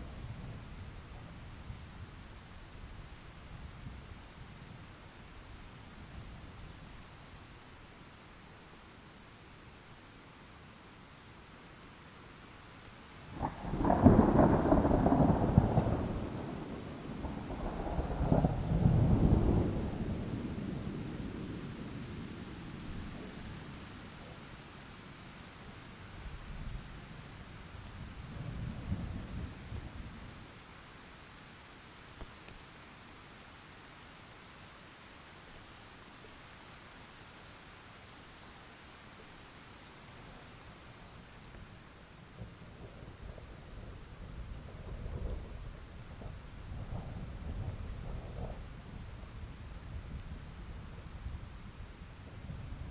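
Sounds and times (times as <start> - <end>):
rain hissing: 0.0 - 52.9
thunder rumbling: 13.4 - 21.1, 42.4 - 50.3.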